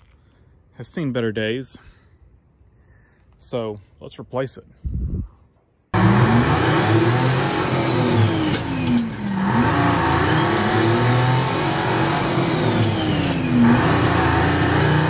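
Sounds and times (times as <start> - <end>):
car engine from inside cabin: 6.0 - 15.0.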